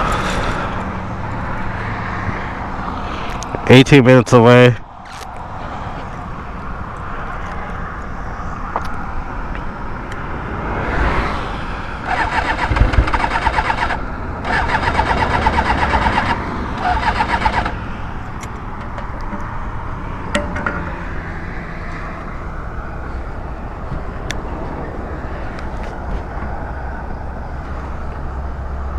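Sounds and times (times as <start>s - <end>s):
motorcycle starter cranking: 12.0s - 17.8s.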